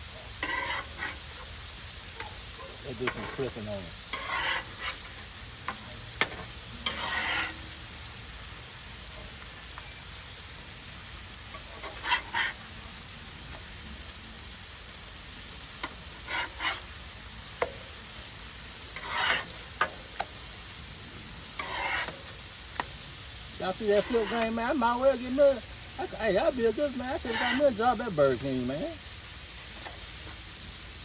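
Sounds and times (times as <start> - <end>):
patties sizzling on a griddle: 0.0 - 31.0
metal spatula scraping: 0.3 - 1.6, 2.9 - 7.8, 11.5 - 12.7, 15.8 - 20.4, 21.4 - 22.9, 23.5 - 25.5, 26.4 - 28.8.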